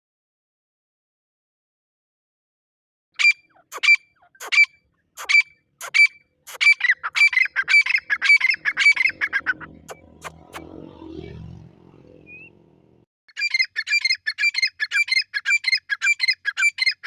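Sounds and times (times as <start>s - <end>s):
partridge calling: 3.2s - 10.4s, 13.3s - 17.0s.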